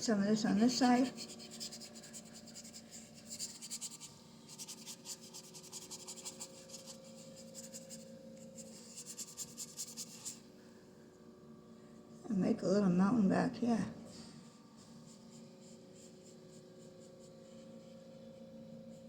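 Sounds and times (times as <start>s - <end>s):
low steady hum: 0.0s - 19.0s
paintbrush scrubbing on canvas: 0.4s - 10.4s, 14.8s - 18.0s.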